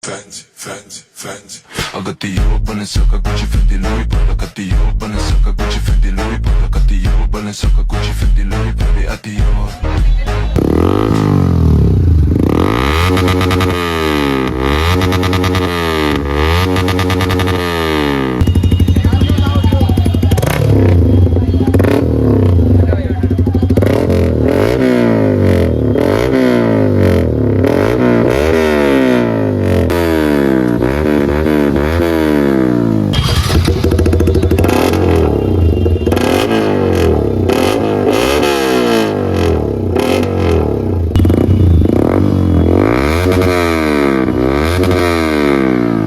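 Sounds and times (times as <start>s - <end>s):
motorcycle engine revving: 9.8s - 46.0s.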